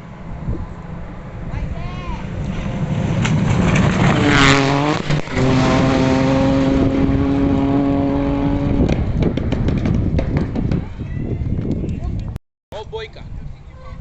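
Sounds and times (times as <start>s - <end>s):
rally car engine at full throttle: 2.3s - 10.5s.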